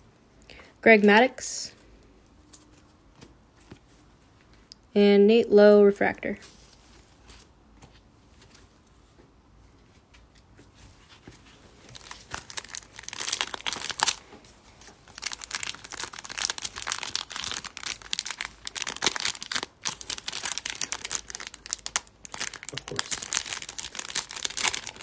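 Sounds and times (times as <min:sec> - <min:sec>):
wrapper crinkling and tearing: 0:11.8 - 0:25.0.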